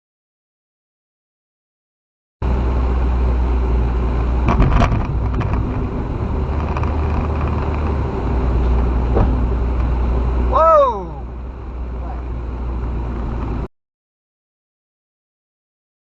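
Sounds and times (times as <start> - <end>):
vehicle engine and road rumble: 2.4 - 13.7
sharp clicks or knocks: 4.4 - 5.9.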